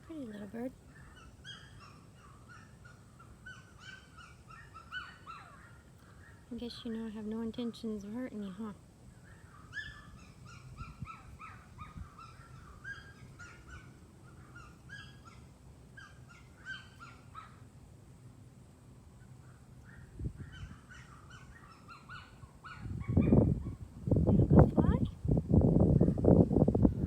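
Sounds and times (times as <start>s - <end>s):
small bird chirping: 0.1s - 7.3s, 8.4s - 17.7s.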